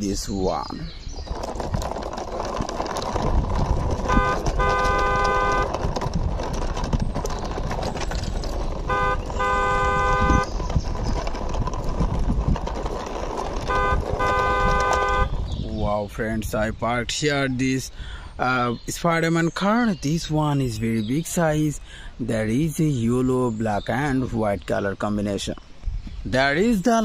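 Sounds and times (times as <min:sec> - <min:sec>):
toy car wheels rolling on stone: 0:00.0 - 0:16.7
car horn tooting: 0:03.8 - 0:06.1, 0:08.8 - 0:10.5, 0:13.5 - 0:15.5.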